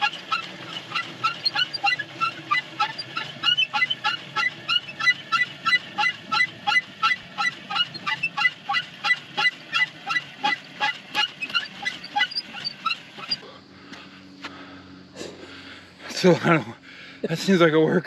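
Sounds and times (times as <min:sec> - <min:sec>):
hand water pump squeaking: 0:00.0 - 0:13.4.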